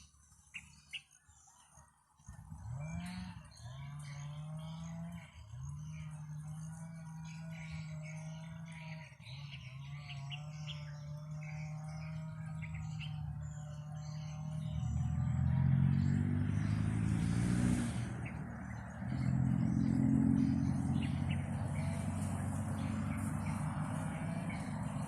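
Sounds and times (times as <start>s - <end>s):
small birds chirping: 0.0s - 25.0s
vehicle engine humming: 0.0s - 25.0s.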